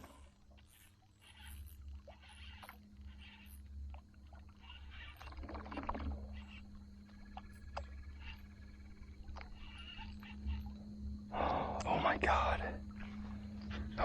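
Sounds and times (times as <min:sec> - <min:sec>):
steady low hum: 0:06.2 - 0:14.0.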